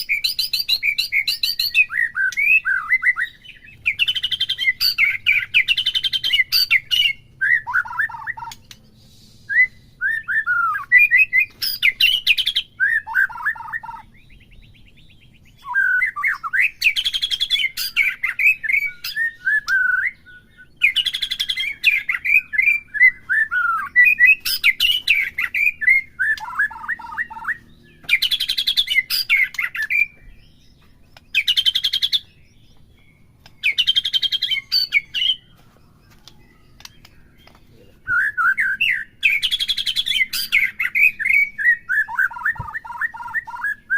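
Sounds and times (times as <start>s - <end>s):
bird whistling descending notes: 9.4s - 14.1s, 15.5s - 30.2s, 38.1s - 43.9s.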